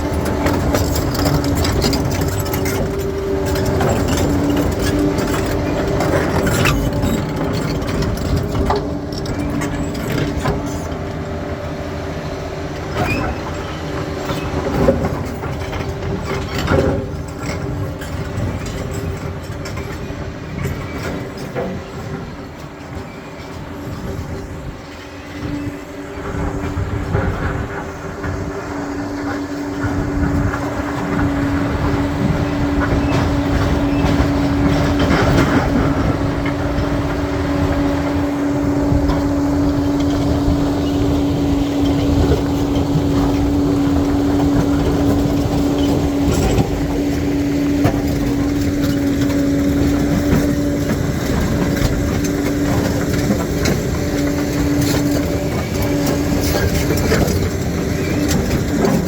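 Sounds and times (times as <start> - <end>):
diesel engine under load: 0.0 - 59.0
steel tracks clanking: 0.0 - 59.0.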